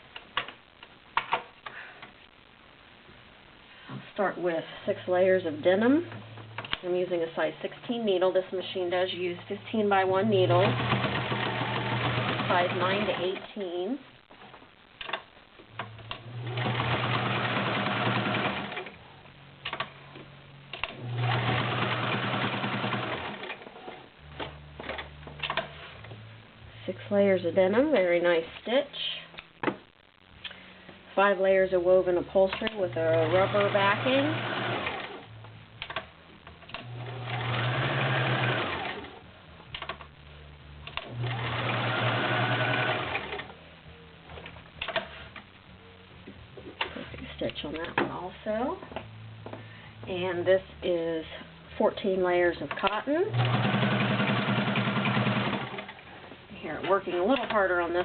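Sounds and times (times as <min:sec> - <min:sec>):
sewing machine stitching: 0:10.4 - 0:13.4, 0:16.1 - 0:18.9, 0:20.8 - 0:23.6, 0:32.7 - 0:35.2, 0:36.7 - 0:39.2, 0:41.0 - 0:43.5, 0:53.3 - 0:56.1.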